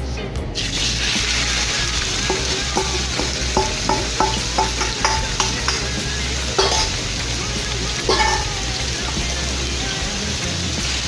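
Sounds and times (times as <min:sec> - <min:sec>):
chicken sizzling in oil: 0:00.4 - 0:11.0
utensil knocking against pan: 0:02.2 - 0:07.1, 0:08.1 - 0:08.6.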